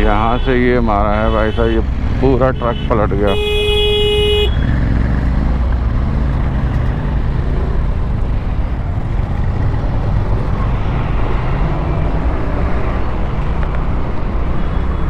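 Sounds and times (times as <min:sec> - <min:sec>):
traffic engines rumbling: 0:00.0 - 0:15.0
car horn blast: 0:03.3 - 0:04.7.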